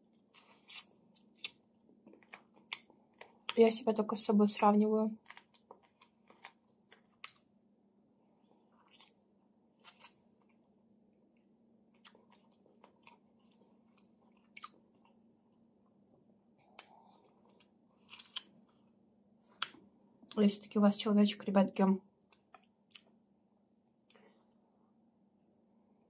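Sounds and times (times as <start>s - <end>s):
faint chewing: 0.1s - 3.7s, 5.1s - 7.5s, 8.4s - 20.4s, 22.2s - 23.2s.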